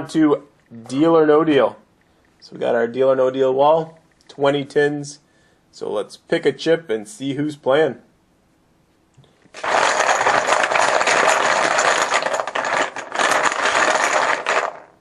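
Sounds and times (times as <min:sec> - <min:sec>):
chips rattling in a container: 0:09.5 - 0:15.0.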